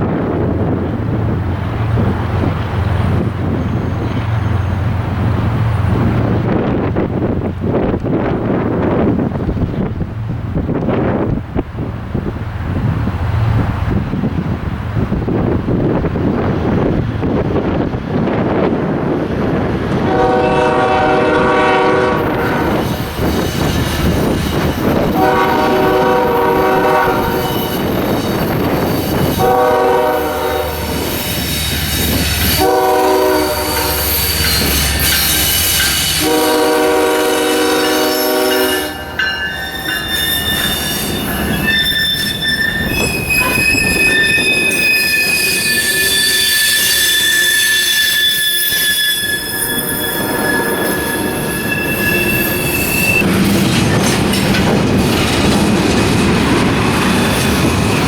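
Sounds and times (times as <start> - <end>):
low train rumble: 0.0 - 58.0
steel wheels squealing on rail: 2.0 - 7.0, 19.4 - 58.0
train horn blasts: 20.0 - 23.0, 25.1 - 28.0, 29.3 - 31.1, 32.4 - 53.3.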